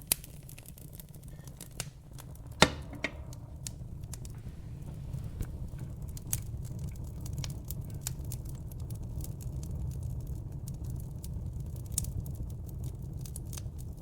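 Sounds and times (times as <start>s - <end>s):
logs crackling: 0.0s - 12.2s
sharp pops: 1.5s - 6.5s
steady low rumble: 1.8s - 10.0s.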